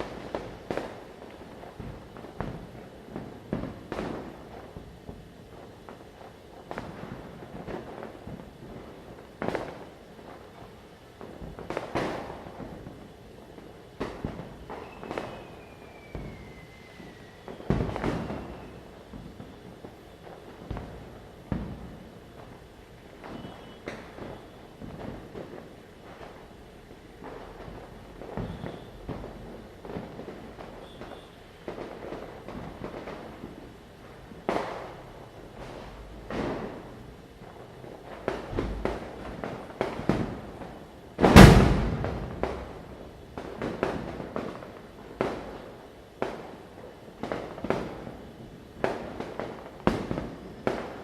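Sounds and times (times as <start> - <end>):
firecrackers banging: 0.0 - 51.0
falling whistle: 14.8 - 18.8, 23.3 - 24.6.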